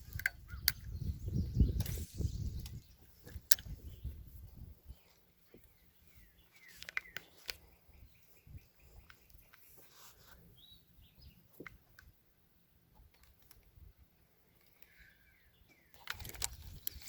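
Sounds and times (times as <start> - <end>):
short bird chirps: 0.3 - 11.5, 14.7 - 17.0
small clicks: 13.0 - 13.8, 14.5 - 15.0, 15.9 - 17.0.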